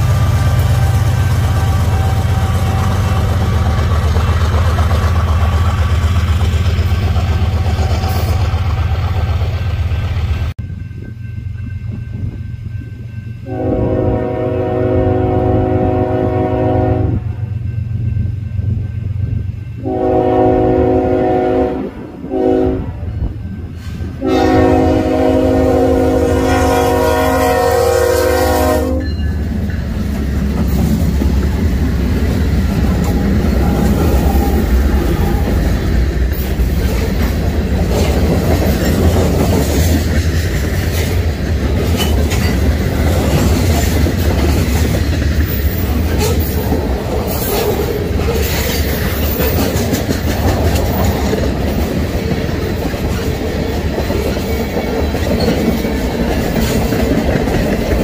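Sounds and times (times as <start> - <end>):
train air horn blasts: 13.4 - 17.5, 19.8 - 29.2
locomotives passing: 17.1 - 58.0.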